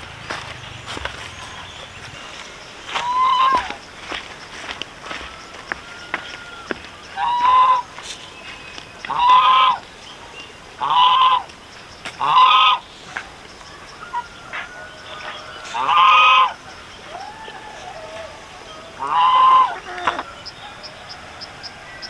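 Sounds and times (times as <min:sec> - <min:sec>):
farm animal calling loudly: 0:00.1 - 0:03.8, 0:05.1 - 0:08.0, 0:09.1 - 0:09.8, 0:10.8 - 0:11.5, 0:12.2 - 0:12.8, 0:14.1 - 0:20.9.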